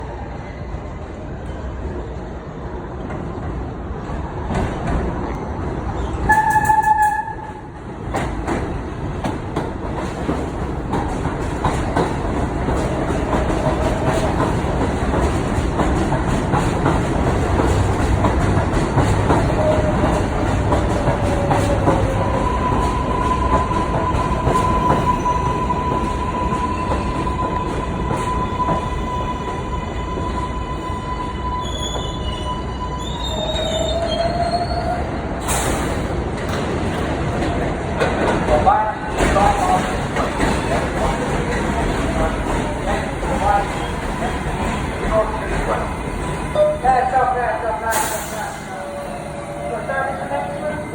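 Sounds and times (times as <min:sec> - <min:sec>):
train rumbling on track: 0:00.0 - 0:50.9
train horn blast: 0:06.3 - 0:07.7
train wheels squealing: 0:19.3 - 0:36.0.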